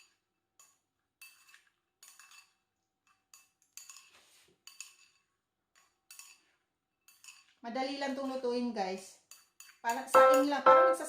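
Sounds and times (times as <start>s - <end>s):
utensil stirring rice in a pot: 0.0s - 7.6s.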